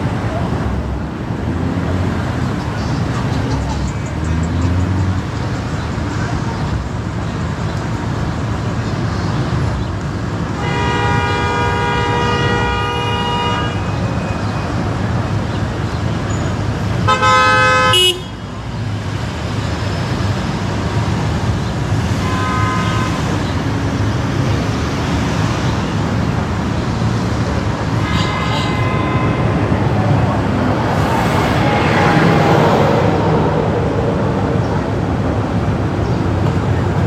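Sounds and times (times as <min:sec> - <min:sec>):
city traffic road noise: 0:00.0 - 0:37.0
car horns honking: 0:10.5 - 0:14.4, 0:17.0 - 0:18.5, 0:22.0 - 0:23.7, 0:27.0 - 0:37.0.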